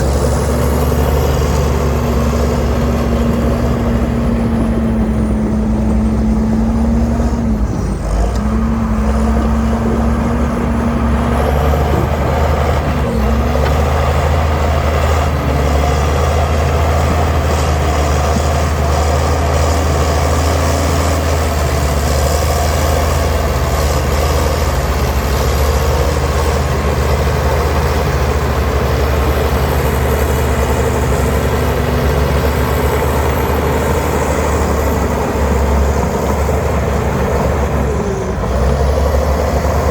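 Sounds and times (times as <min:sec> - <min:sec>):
diesel machinery engine drone: 0:00.0 - 0:39.9.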